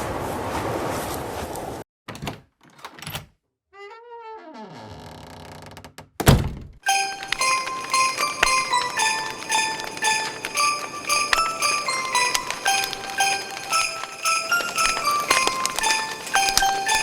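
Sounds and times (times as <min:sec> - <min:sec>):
chiming music with jingle bells: 0:06.8 - 0:17.0.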